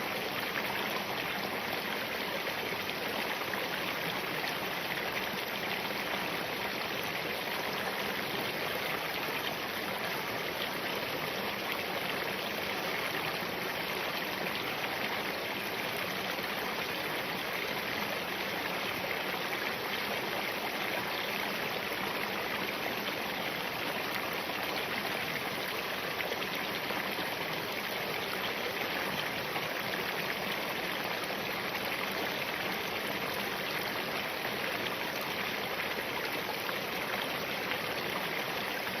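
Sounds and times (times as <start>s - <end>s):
stream running over rocks: 0.0s - 39.0s.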